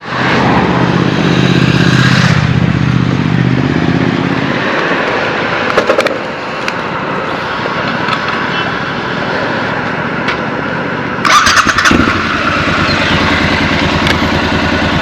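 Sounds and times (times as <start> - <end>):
motorcycle engine running: 11.2 - 15.0.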